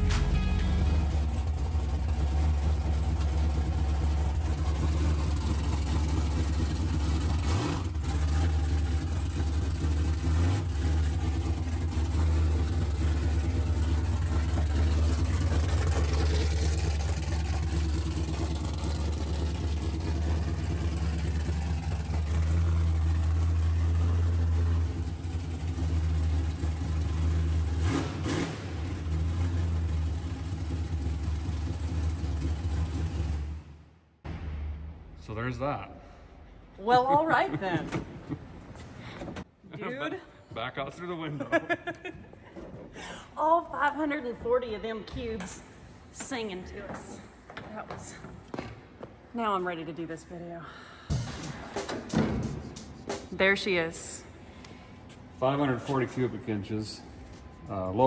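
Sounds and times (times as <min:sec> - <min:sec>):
car engine rumbling at low revs: 0:00.0 - 0:39.6.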